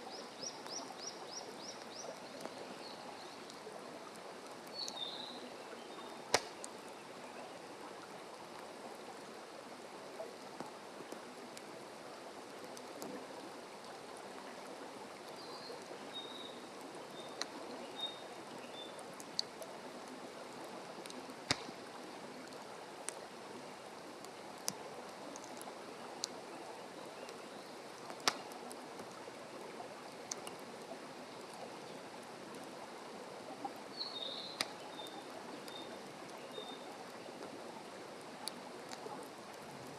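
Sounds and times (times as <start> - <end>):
campfire crackling and popping: 0.0 - 5.6, 6.2 - 7.0, 7.8 - 39.9
bird chirping: 34.0 - 35.9.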